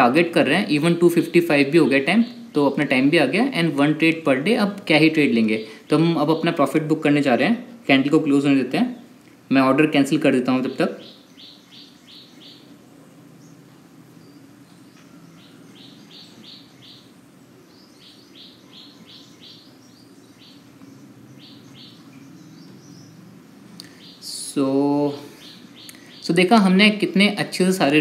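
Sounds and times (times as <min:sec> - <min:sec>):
small bird chirping: 0:10.7 - 0:26.7.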